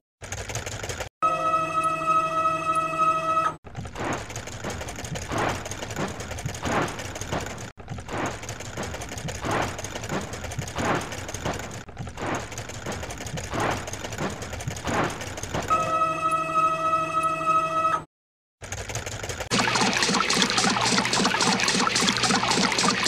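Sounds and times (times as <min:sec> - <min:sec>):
cartoon car-wash brush whirring: 0:00.2 - 0:01.1, 0:18.6 - 0:23.0.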